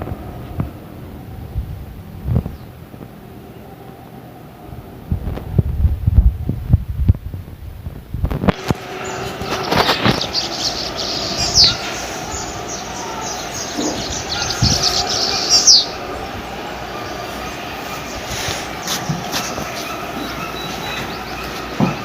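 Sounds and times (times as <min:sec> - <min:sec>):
bird chirping: 0:08.6 - 0:22.0.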